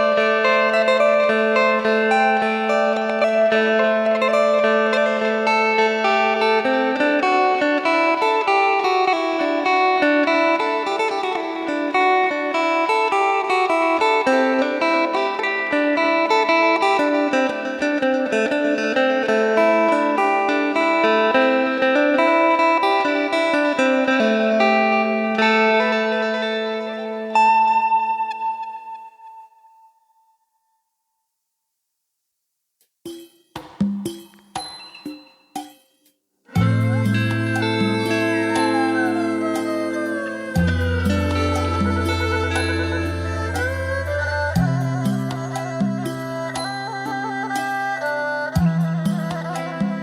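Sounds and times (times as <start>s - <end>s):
electric lute plucked melody: 0.0s - 29.7s, 36.5s - 50.0s
steady drone note: 36.6s - 44.7s.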